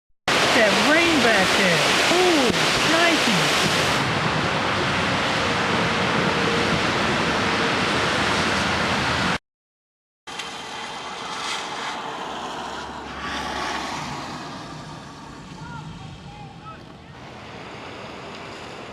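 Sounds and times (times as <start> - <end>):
heavy rain: 0.3 - 9.4
strong gusting wind: 0.3 - 9.4, 10.7 - 18.9.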